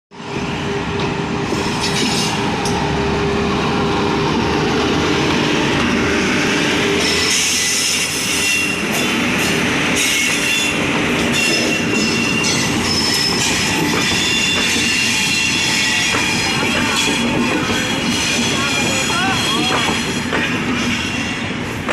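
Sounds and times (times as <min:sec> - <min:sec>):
train wheels rolling on rails: 0:00.2 - 0:21.9.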